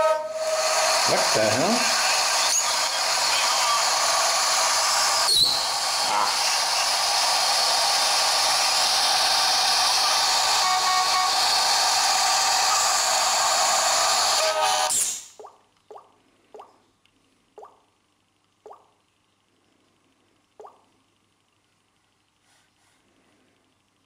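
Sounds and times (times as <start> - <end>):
air horn blast: 0.0 - 0.6, 10.4 - 11.5, 14.3 - 15.0
hiss of air: 0.0 - 15.4.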